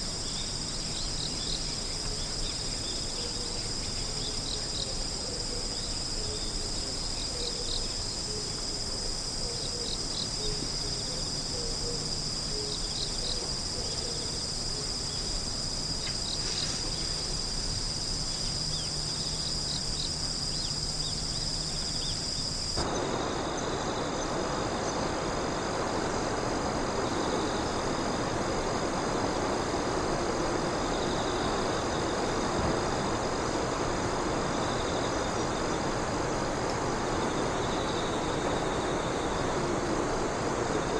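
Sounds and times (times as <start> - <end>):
insects trilling: 0.0 - 40.9
steady rushing noise: 22.8 - 40.9.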